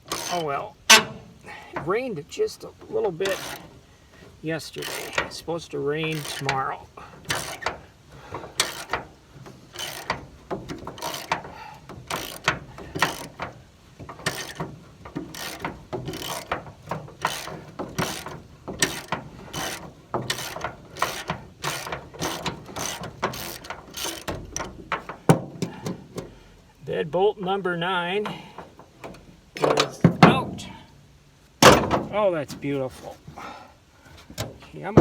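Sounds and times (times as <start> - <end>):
ratchet wrench clicking: 0.0 - 1.2, 3.2 - 3.7, 4.7 - 5.4, 6.0 - 7.8, 8.6 - 25.2.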